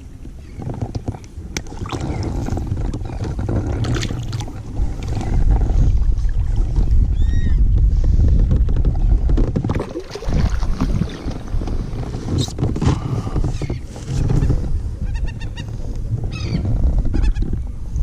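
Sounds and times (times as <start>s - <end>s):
wind and water rumble: 0.0s - 18.0s
birds calling: 13.2s - 17.5s.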